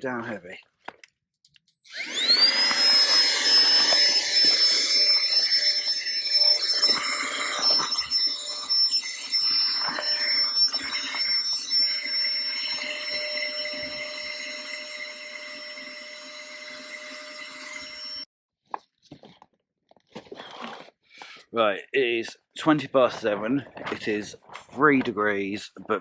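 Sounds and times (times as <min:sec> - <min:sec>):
electric air pump whining: 0:01.9 - 0:18.3.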